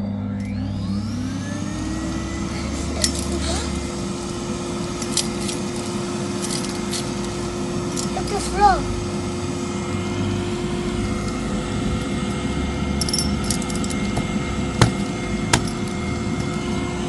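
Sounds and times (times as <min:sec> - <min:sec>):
vacuum cleaner motor humming: 0:00.0 - 0:17.0
sharp knocks: 0:14.2 - 0:15.8.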